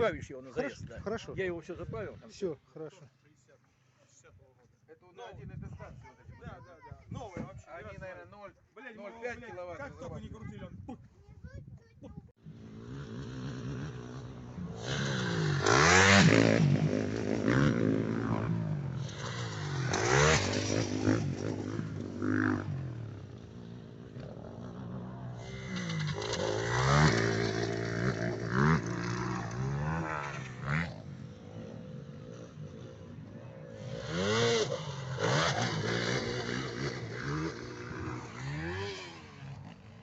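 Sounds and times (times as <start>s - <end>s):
motocross bikes revving: 12.4s - 40.0s.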